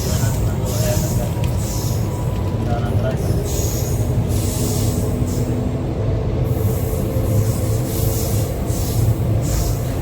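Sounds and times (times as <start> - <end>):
train hissing: 0.0 - 2.3, 3.2 - 10.0
train wheels rumbling: 0.0 - 10.0.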